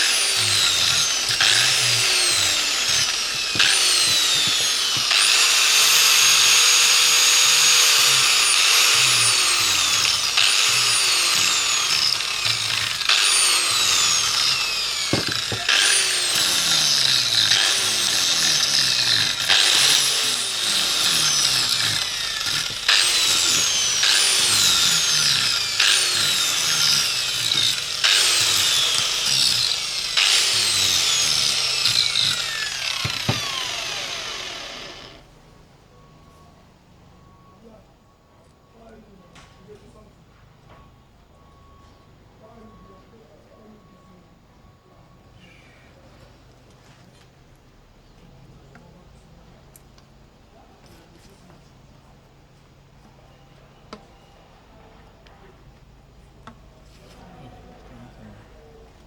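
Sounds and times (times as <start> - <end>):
power tool whine: 0.0 - 35.3.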